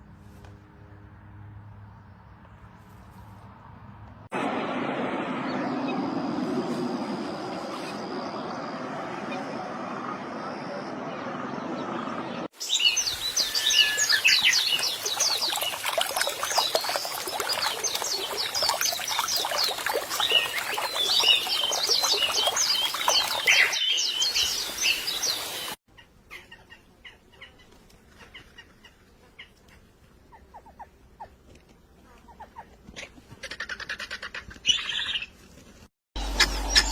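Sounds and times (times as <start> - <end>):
flock of small birds chirping: 12.6 - 25.8.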